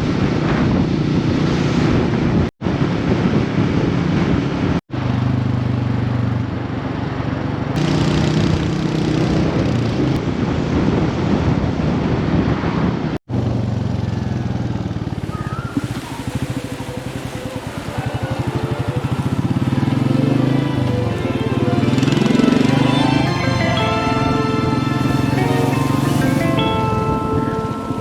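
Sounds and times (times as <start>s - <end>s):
wind noise on microphone: 0.0s - 4.8s, 7.9s - 13.2s, 15.0s - 22.1s, 23.7s - 28.0s
motorcycle engine running: 7.8s - 10.1s, 13.4s - 28.0s.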